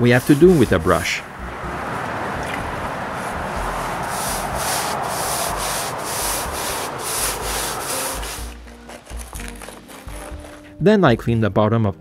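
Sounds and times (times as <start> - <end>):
paintbrush scratching on wood: 0.0 - 1.2, 2.7 - 10.6.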